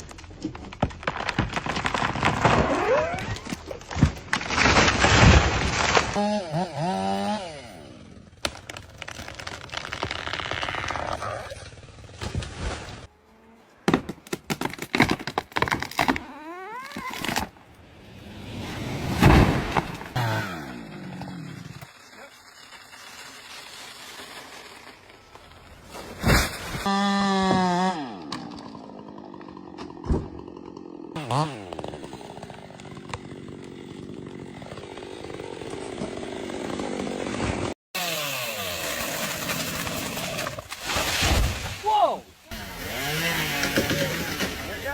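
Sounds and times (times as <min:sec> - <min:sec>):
chainsaw running: 0:06.0 - 0:08.4, 0:20.0 - 0:22.0, 0:26.8 - 0:40.7, 0:42.5 - 0:44.9.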